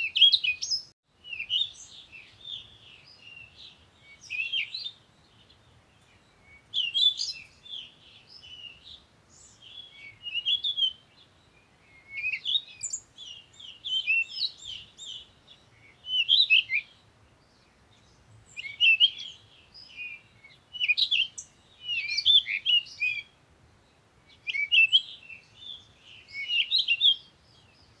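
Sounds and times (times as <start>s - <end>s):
songbird chirping: 0.0s - 28.0s.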